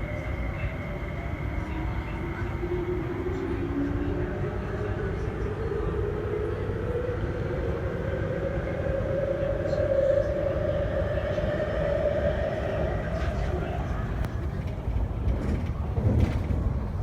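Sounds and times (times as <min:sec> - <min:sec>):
train wheels rumbling on rail: 0:10.0 - 0:17.0.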